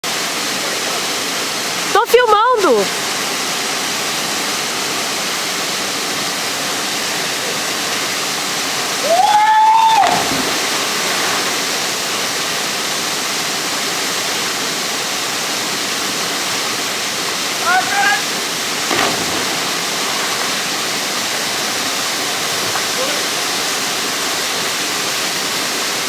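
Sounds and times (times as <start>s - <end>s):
waterfall rushing: 0.0s - 26.0s
person shouting: 17.6s - 18.3s.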